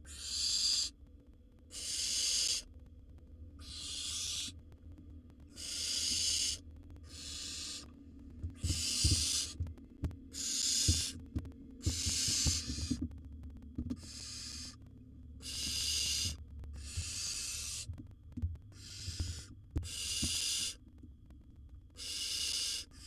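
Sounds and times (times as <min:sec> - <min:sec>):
owl nestlings hissing calls: 0:00.1 - 0:01.0, 0:01.7 - 0:02.7, 0:03.6 - 0:04.6, 0:05.5 - 0:07.9, 0:08.6 - 0:09.6, 0:10.3 - 0:11.2, 0:11.8 - 0:13.0, 0:14.0 - 0:14.8, 0:15.4 - 0:17.9, 0:18.7 - 0:20.8, 0:22.0 - 0:23.0.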